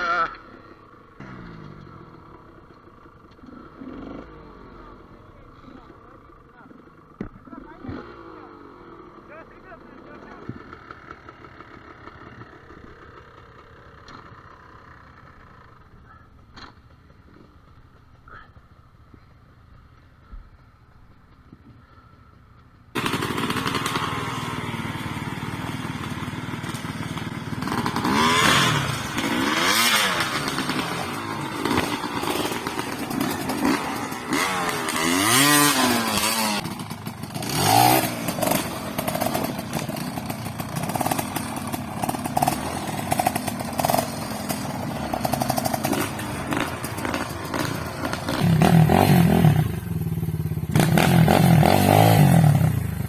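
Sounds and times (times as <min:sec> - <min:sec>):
motorcycle engine revving: 0:00.0 - 0:18.5, 0:22.9 - 0:53.0.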